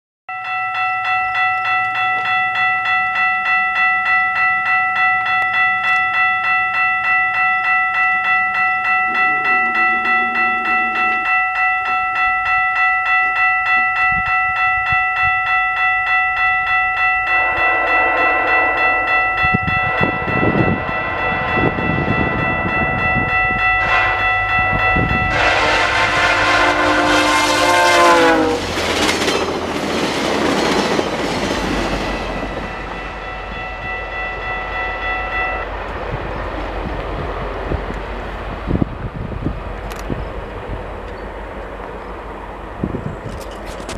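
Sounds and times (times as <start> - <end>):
level-crossing warning bell: 0.3 - 43.9
train rumble: 4.5 - 43.9
wheels clattering on rail: 7.8 - 33.3, 38.7 - 43.9
train horn: 9.1 - 11.6, 17.2 - 22.9, 23.6 - 28.8.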